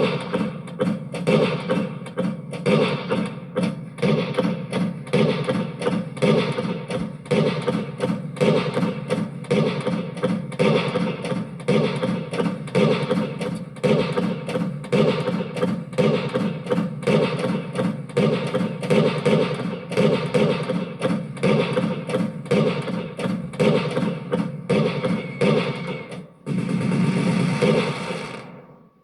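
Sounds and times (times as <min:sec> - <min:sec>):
fireworks bursting: 0:24.8 - 0:28.7.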